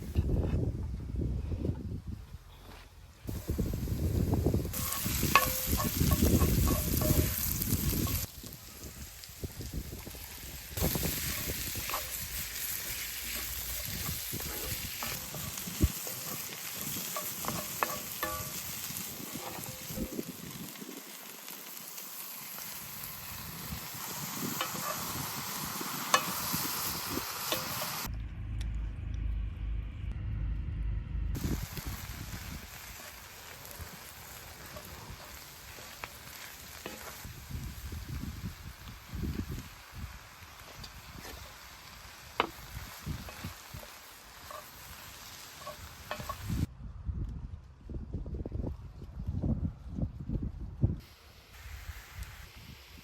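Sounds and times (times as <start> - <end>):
eggplant sizzling in a pan: 3.3 - 28.1, 31.4 - 46.7
low rumble: 28.0 - 33.0.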